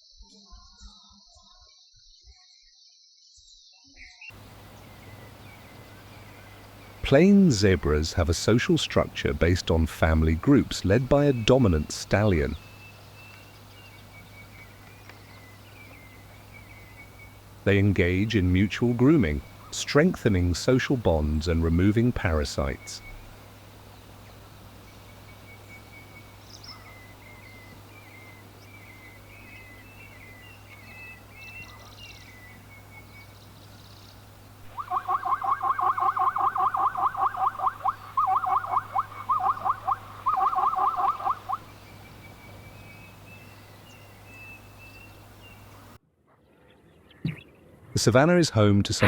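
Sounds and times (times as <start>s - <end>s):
faint high bird chirps: 0.0s - 9.4s, 10.2s - 20.1s, 20.7s - 47.6s
rapid pulsed animal call: 10.1s - 46.0s.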